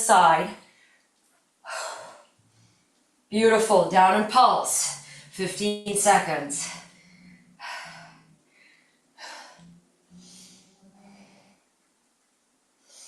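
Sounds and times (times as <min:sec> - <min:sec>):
woman breathing heavily: 0:01.6 - 0:03.0, 0:04.8 - 0:05.4, 0:06.6 - 0:11.7, 0:12.8 - 0:13.0.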